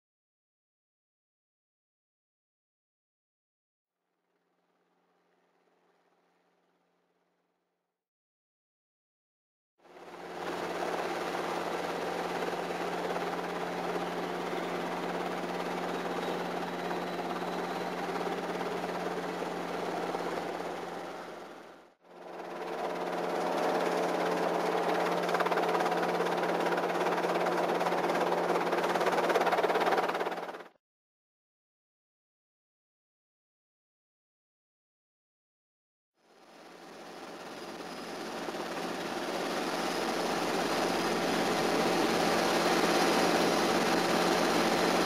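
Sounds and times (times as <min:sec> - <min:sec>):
helicopter engine and rotors: 0:09.8 - 0:30.8, 0:36.2 - 0:45.0.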